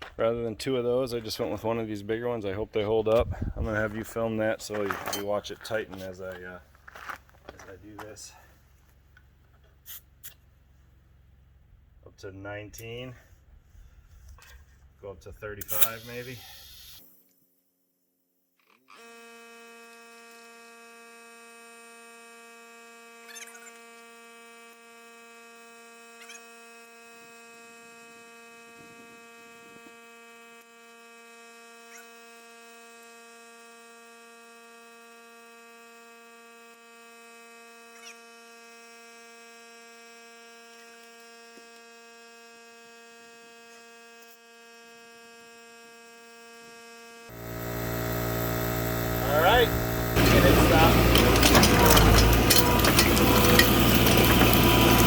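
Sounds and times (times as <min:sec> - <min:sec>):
steady hum: 0:47.3 - 0:55.0.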